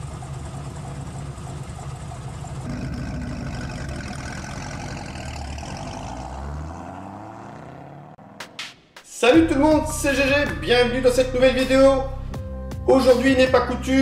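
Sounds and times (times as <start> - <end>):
car engine idling: 0.0 - 7.3.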